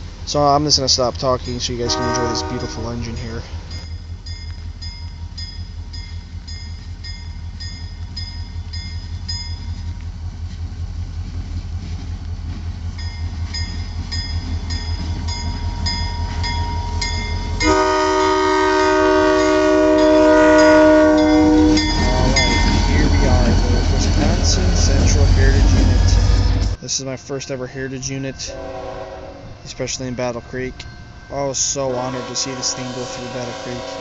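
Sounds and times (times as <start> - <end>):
locomotive engine rumble: 0.0 - 34.0
crossing bell ringing: 1.4 - 10.0, 13.0 - 34.0
locomotive air horn: 1.8 - 3.2, 17.6 - 23.5, 28.5 - 29.6, 32.0 - 34.0.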